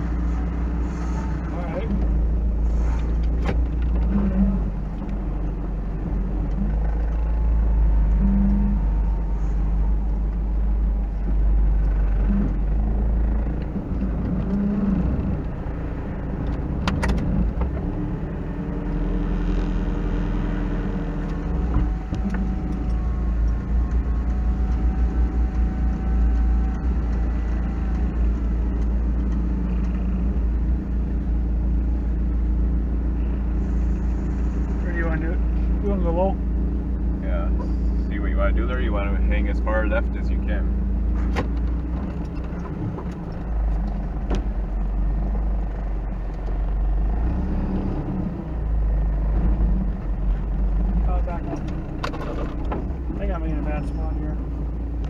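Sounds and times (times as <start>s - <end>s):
engine rumbling at low speed: 0.0s - 55.0s.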